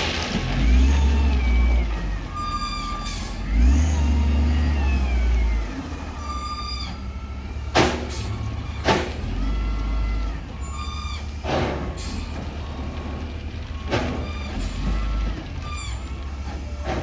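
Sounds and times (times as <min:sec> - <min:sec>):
diesel engine running and revving: 0:00.0 - 0:17.0.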